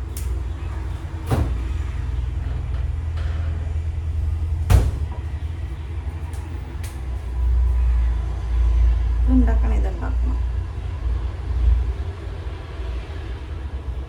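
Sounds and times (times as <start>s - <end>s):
sharp knocks: 4.7s - 5.4s.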